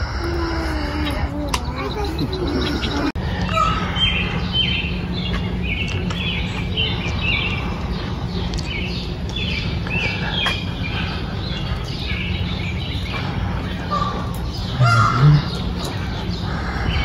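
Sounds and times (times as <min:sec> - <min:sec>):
small birds chirping: 0:00.0 - 0:17.0
steady low rumble: 0:00.0 - 0:17.0.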